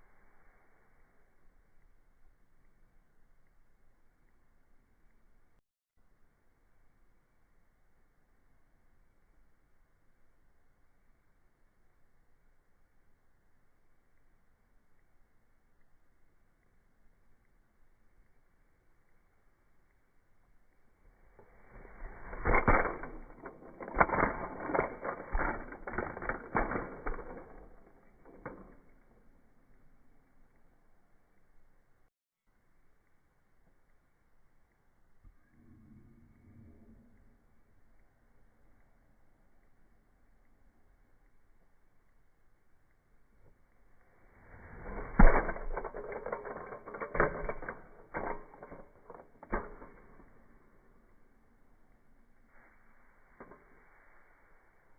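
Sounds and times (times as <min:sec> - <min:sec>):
knocks and clatters: 0:21.4 - 0:29.4, 0:44.5 - 0:50.7.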